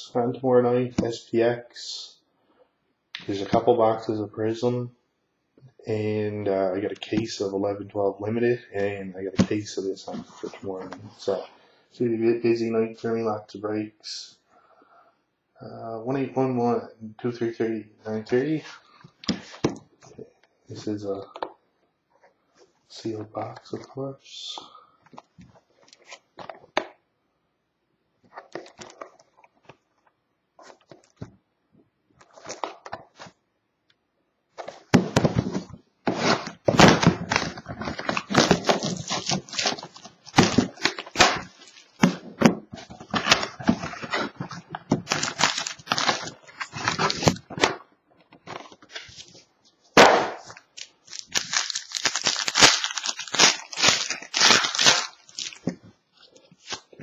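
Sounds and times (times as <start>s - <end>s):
plastic and foil wrapping crinkling: 35.5s - 42.2s, 42.8s - 47.5s, 50.5s - 57.0s
wrapping tearing: 37.2s - 42.1s, 43.0s - 47.4s, 50.7s - 55.6s.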